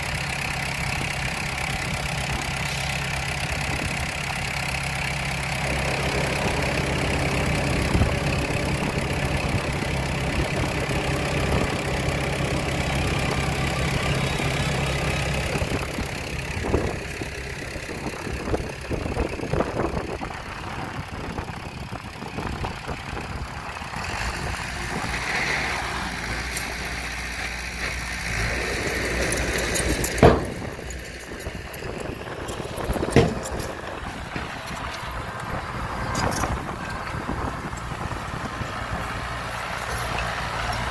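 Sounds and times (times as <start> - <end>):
diesel engine idling: 0.0 - 40.9
knocks and clanks: 29.2 - 35.1.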